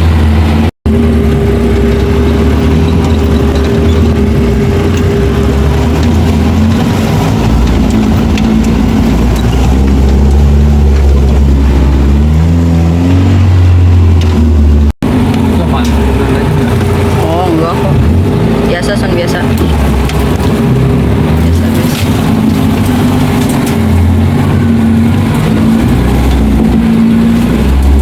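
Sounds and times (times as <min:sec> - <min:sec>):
off-road vehicle engine revving: 0:00.0 - 0:28.0.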